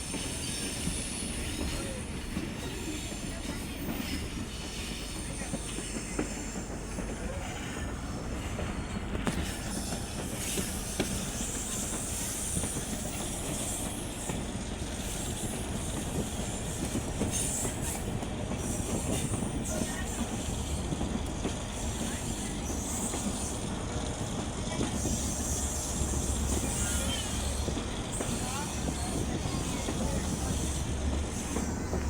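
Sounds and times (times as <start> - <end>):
train rumbling along track: 0.0 - 32.0
high wheel squeal: 24.9 - 32.0.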